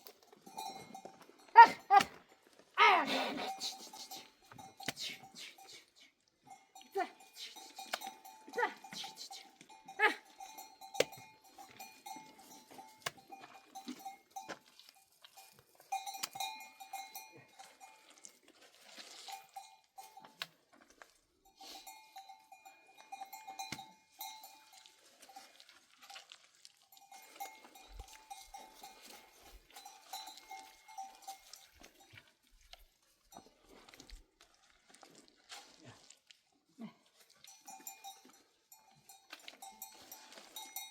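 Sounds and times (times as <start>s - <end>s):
animal bells clanking: 0.0s - 32.5s, 33.1s - 34.0s, 37.3s - 40.9s
goats or sheep bleating: 0.7s - 2.2s, 2.8s - 5.4s, 6.9s - 12.6s.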